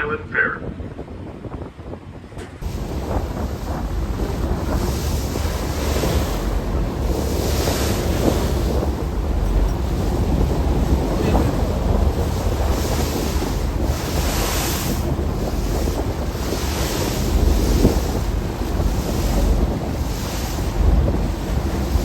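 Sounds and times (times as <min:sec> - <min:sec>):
steady low rumble: 0:00.0 - 0:22.0
wind buffeting microphone: 0:00.0 - 0:22.0.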